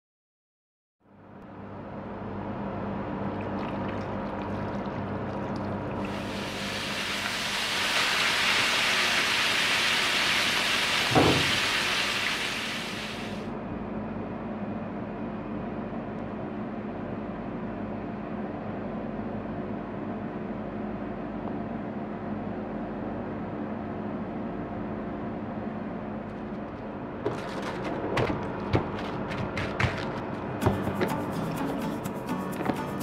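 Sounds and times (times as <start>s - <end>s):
meat sizzling in a hot pan: 6.1s - 13.4s
knock on pan: 11.1s - 11.6s.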